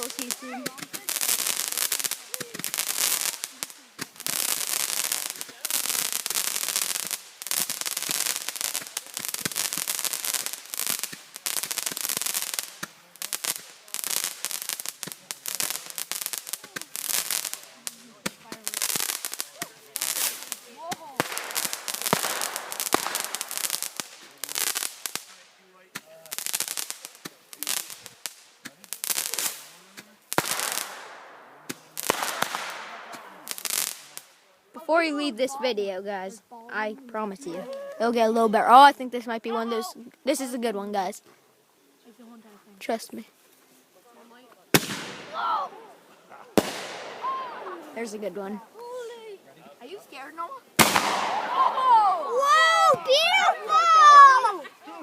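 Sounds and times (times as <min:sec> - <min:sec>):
firework bangs: 0:00.0 - 0:34.6, 0:44.7 - 0:49.1, 0:50.7 - 0:55.0
roman candles firing: 0:00.0 - 0:35.8, 0:44.7 - 0:48.6, 0:50.8 - 0:55.0
hissing crackle with sharp pops: 0:00.0 - 0:55.0.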